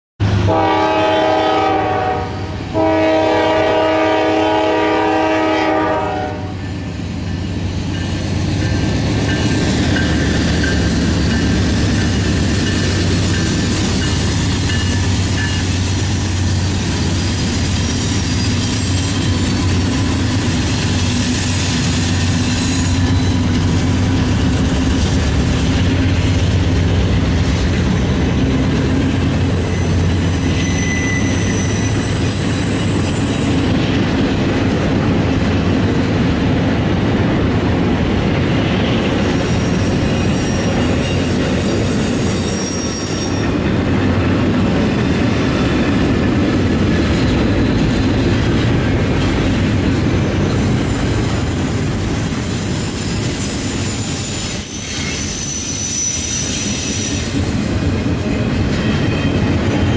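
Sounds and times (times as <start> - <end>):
locomotive air horn: 0.4 - 6.6
wheels clattering on rails: 7.1 - 36.5
high-pitched wheel squeal: 12.8 - 24.0, 28.6 - 33.8, 39.4 - 43.6, 50.4 - 59.9.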